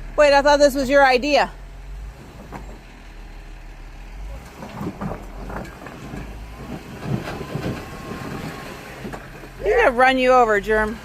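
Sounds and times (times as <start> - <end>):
off-road vehicle engine idling: 0.0 - 11.0
short knocks and crackles: 2.2 - 3.0, 4.4 - 9.6.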